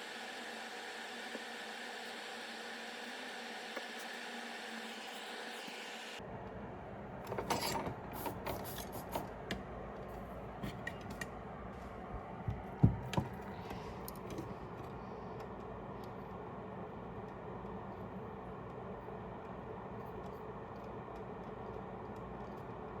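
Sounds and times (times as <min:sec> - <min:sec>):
steady low hum: 0:06.2 - 0:23.0.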